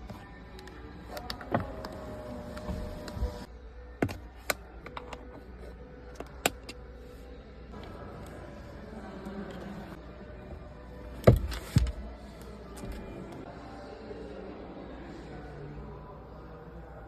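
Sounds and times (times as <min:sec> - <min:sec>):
power window motor whining: 0:01.4 - 0:03.5.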